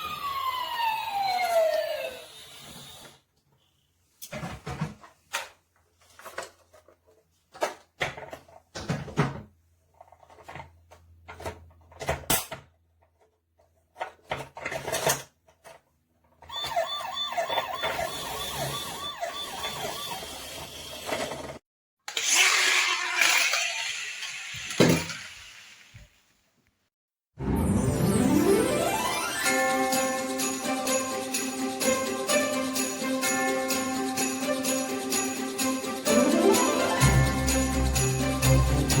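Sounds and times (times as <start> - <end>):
toy electronic siren wailing: 0.0 - 2.6, 16.5 - 21.2
toy vehicles clicking and knocking: 5.0 - 9.0, 9.9 - 26.1.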